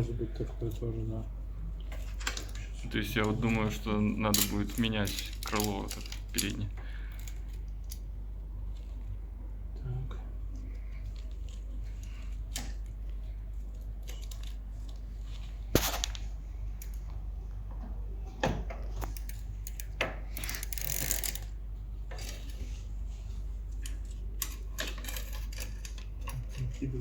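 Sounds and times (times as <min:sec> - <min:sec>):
bicycle parts clicking and knocking: 0:04.2 - 0:08.1, 0:13.7 - 0:15.0, 0:18.4 - 0:22.6, 0:23.7 - 0:26.8.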